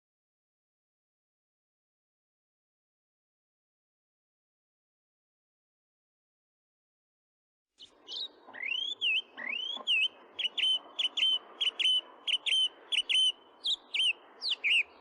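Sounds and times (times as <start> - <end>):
bird whistling song: 7.8 - 15.0.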